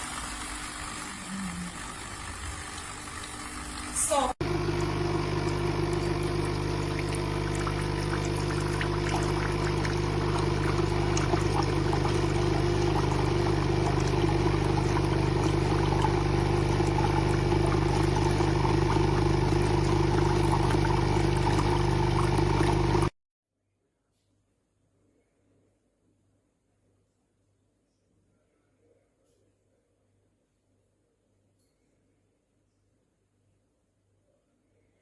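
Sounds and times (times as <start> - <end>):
coffee machine pump humming: 0.0 - 23.1.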